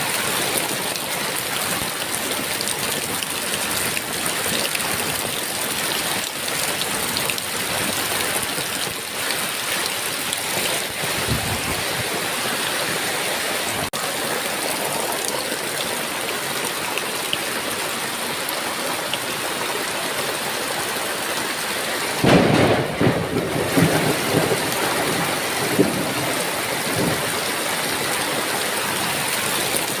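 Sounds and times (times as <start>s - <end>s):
heavy rain falling: 0.0s - 30.0s
rolling thunder: 22.2s - 27.4s.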